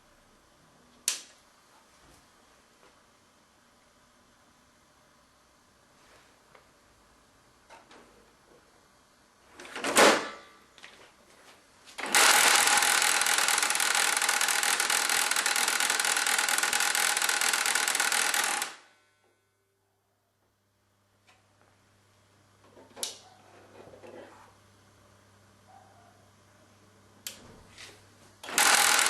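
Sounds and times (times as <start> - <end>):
laser printer grinding and rattling: 12.0 - 18.8, 28.4 - 29.0.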